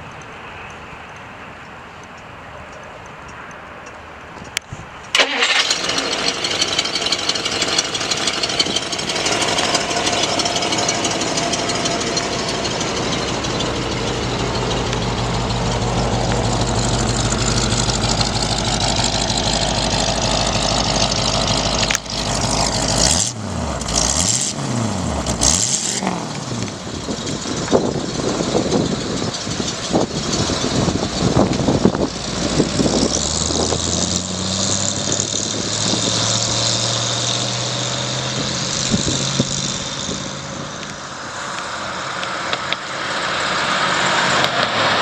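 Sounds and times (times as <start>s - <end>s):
engine cranking and starting: 5.1s - 37.4s
engine revving: 5.2s - 45.0s.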